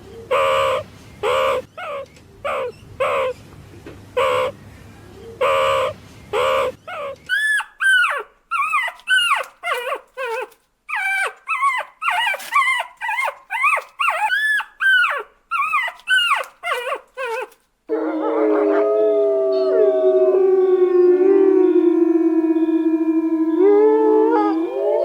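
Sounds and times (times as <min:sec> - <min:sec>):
dog yelping and howling: 0:06.4 - 0:25.0
dogs howling together: 0:17.9 - 0:25.0.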